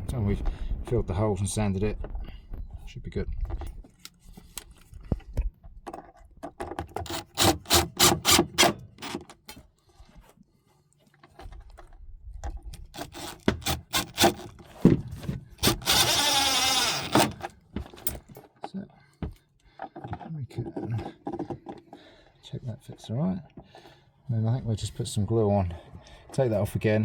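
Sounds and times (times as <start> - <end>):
loud rasping noise: 7.0 - 9.3, 13.0 - 14.6, 15.6 - 17.5.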